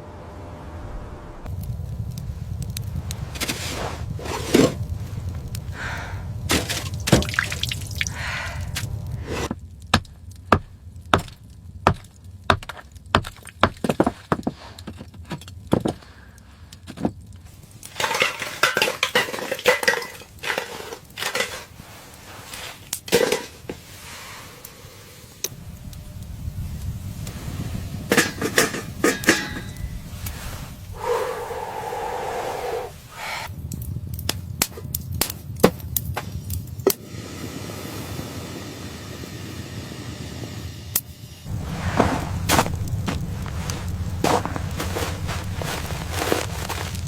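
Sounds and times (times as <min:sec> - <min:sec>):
low rumble: 0:00.0 - 0:09.5, 0:25.5 - 0:34.4, 0:41.5 - 0:47.0.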